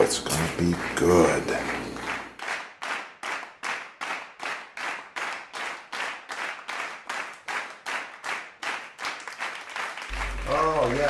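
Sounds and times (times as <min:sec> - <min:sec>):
sharp percussive hits: 0:10.1 - 0:11.0.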